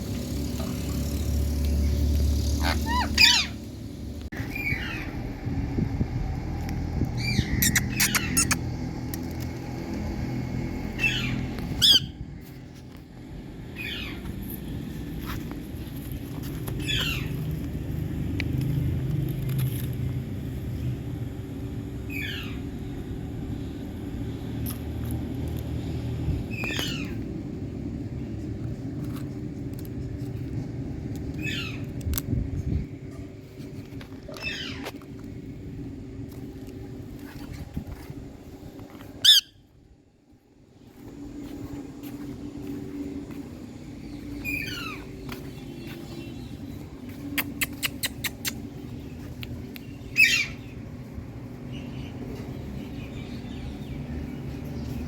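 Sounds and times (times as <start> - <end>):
low rumble: 0.0 - 21.8
steady low rumble: 0.0 - 55.0
parakeet screeching: 2.5 - 3.6, 7.2 - 8.6, 11.0 - 12.2, 39.2 - 39.6
parakeet screech: 2.6 - 3.6.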